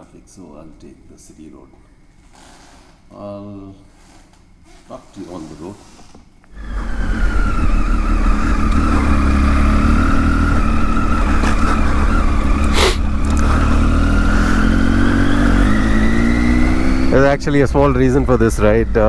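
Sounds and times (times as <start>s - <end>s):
faint whine: 0.0s - 2.2s, 3.1s - 19.0s
motorcycle engine running: 6.6s - 19.0s.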